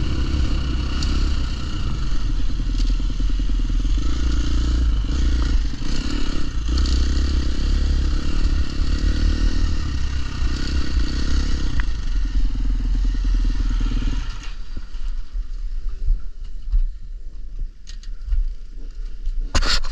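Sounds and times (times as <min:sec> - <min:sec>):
dirt bike engine running: 0:00.0 - 0:15.7.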